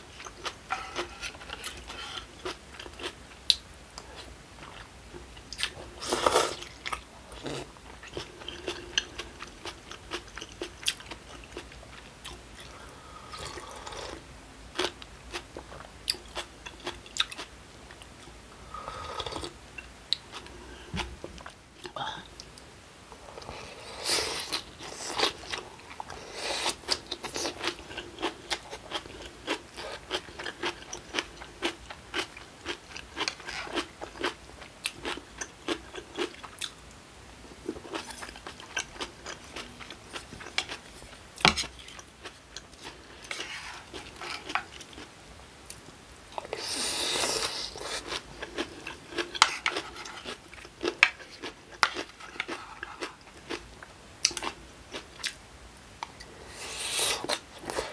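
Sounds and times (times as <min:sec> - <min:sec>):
wet chewing and crunching: 0:24.4 - 0:36.8, 0:47.0 - 0:55.4.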